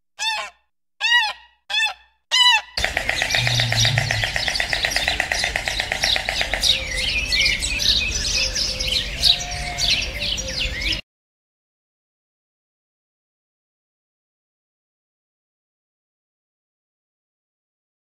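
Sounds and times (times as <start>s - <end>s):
rapid rattling trill: 2.8s - 6.6s
birds chirping: 2.8s - 11.0s.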